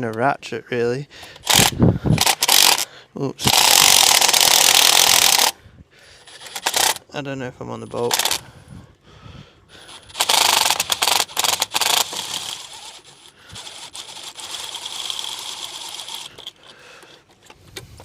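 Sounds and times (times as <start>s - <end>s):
cordless driver rattling and whirring: 1.2s - 5.6s, 6.2s - 7.1s, 8.0s - 8.6s, 9.8s - 18.0s.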